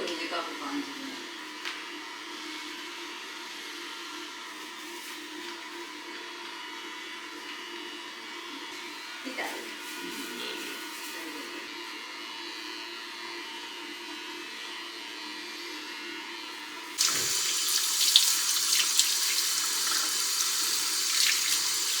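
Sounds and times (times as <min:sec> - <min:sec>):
tap water splashing into sink: 0:17.0 - 0:22.0.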